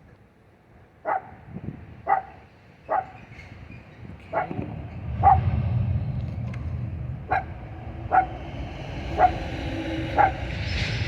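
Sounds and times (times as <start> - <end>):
dog barking: 1.0 - 1.4, 2.1 - 3.2, 5.2 - 5.5, 7.3 - 7.5, 8.1 - 8.3
steady low rumble: 4.2 - 11.0.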